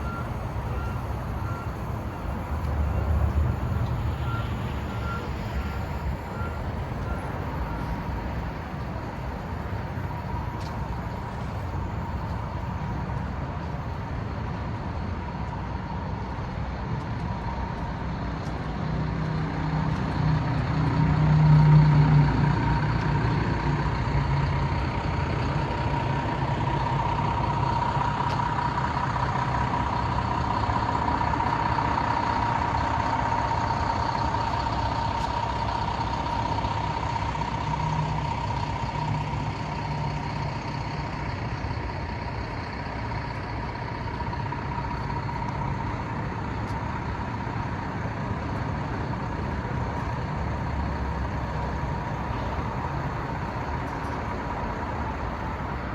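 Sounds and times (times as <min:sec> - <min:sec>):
diesel truck engine rumble: 0:00.0 - 0:55.9
steady turbo whine: 0:43.0 - 0:55.9.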